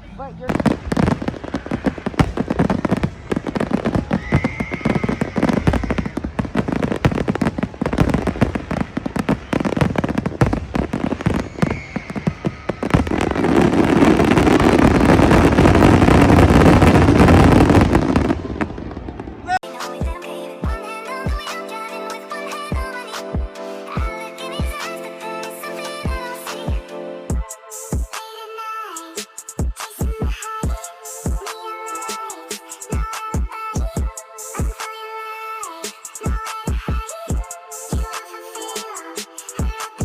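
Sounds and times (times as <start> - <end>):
fireworks cracking and banging: 0.4 - 19.6
firework whistle: 0.6 - 19.2.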